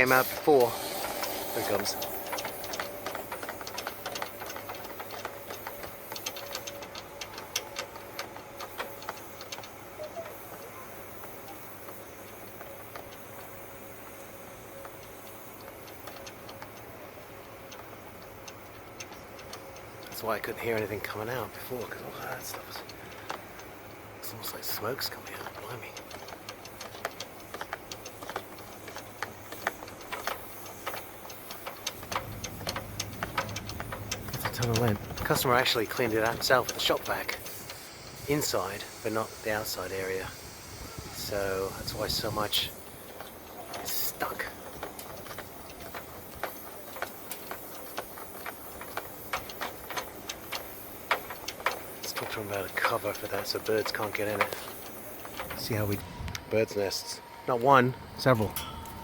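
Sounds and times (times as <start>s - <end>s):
faint steady whine: 0.0s - 59.0s
sharp clicks and ticks: 0.0s - 59.0s
debris rattling through dryer vent: 20.0s - 40.4s, 41.0s - 56.0s.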